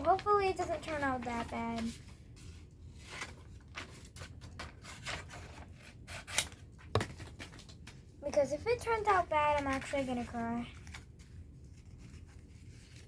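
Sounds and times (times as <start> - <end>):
hands rustling and scraping puppet: 7.0 - 13.0.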